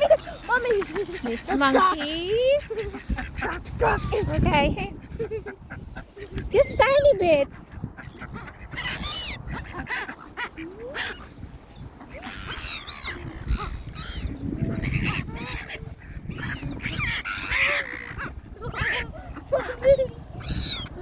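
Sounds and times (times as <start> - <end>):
ducks quacking: 0.0 - 21.0
gulls crying: 8.3 - 21.0.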